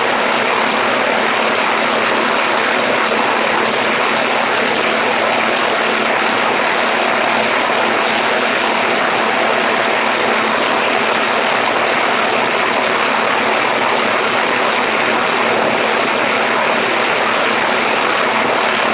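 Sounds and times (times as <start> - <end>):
faint aircraft engine and propeller: 0.0 - 18.9.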